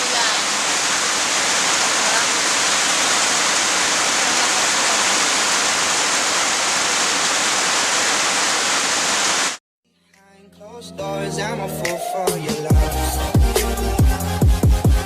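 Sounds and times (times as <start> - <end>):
heavy rain pouring: 0.0 - 9.6.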